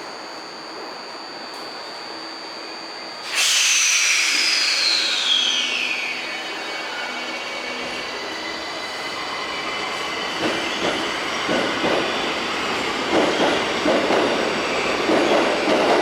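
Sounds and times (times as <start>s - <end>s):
subway train hum: 0.0s - 16.0s
faint high wheel squeal: 3.3s - 13.7s
wheels clacking over rail joints: 9.9s - 16.0s.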